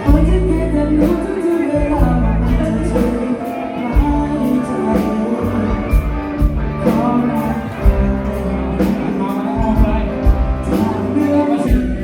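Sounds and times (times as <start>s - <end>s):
live rock band: 0.0s - 12.0s
person singing: 0.0s - 12.0s
drum beat: 5.9s - 12.0s.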